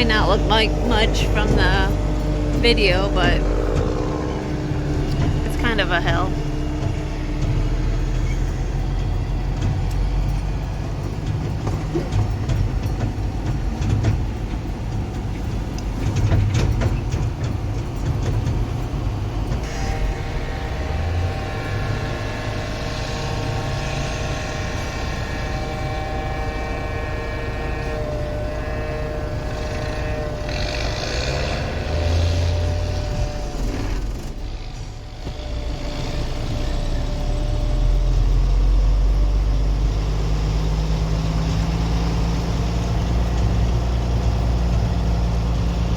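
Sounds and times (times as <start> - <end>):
high multi-tone whine: 0.0 - 10.0, 19.6 - 39.3
heavy vehicle engine rumbling: 0.0 - 45.9.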